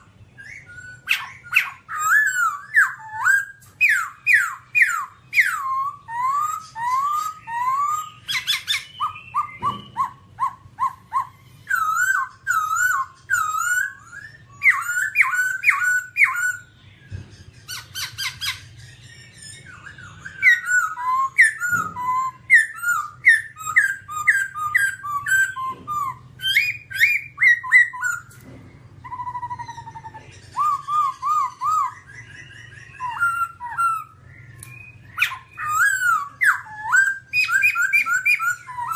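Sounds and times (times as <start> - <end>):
bird singing whistled notes: 0.0 - 38.9.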